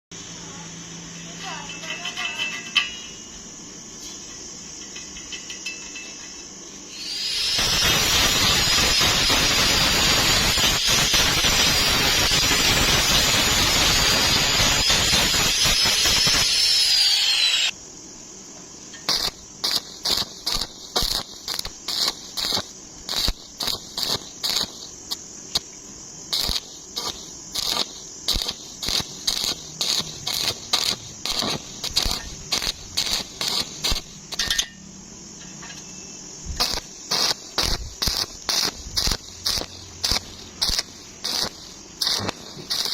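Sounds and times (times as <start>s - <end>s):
arc welding crackling: 0.4s - 17.8s, 18.9s - 34.7s, 36.4s - 42.9s
power tool whining: 14.8s - 17.7s.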